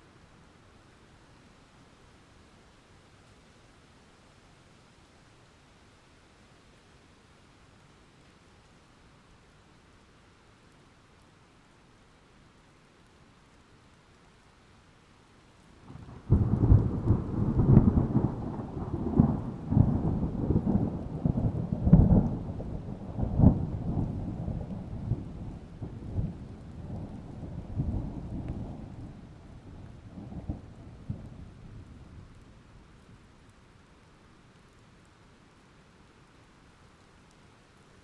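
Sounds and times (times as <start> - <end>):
thunder crack and rumble: 15.9 - 32.5.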